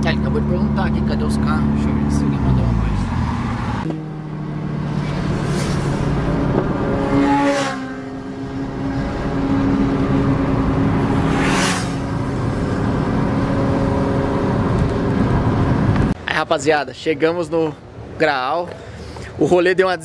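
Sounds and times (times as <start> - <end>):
car engine from inside cabin: 0.0 - 16.2
turbo whoosh: 2.6 - 9.6, 10.8 - 13.0.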